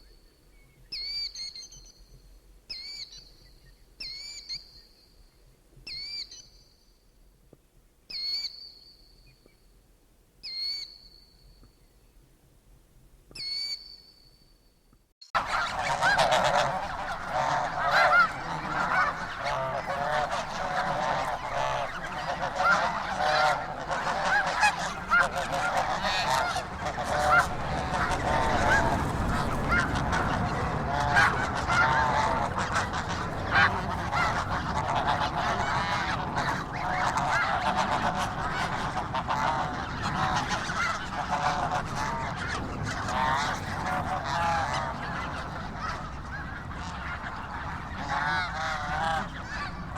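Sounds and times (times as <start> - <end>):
geese honking: 15.4 - 49.9.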